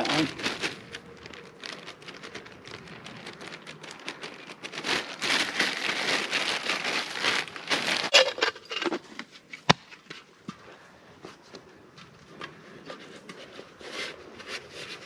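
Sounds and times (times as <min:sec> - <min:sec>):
charcoal crunching and rustling: 0:00.0 - 0:10.9.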